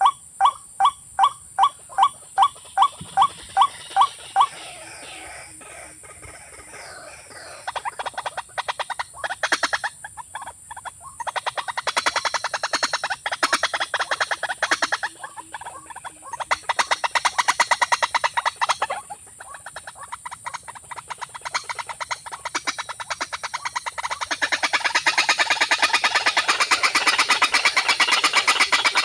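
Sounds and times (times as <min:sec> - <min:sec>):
bird knocking call: 0:00.0 - 0:07.9, 0:19.8 - 0:29.0.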